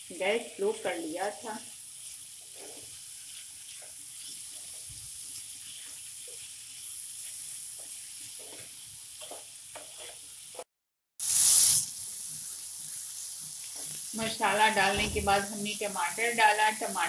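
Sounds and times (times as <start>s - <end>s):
food sizzling in a frying pan: 0.0s - 17.0s
spatula scraping a pan: 2.0s - 10.7s.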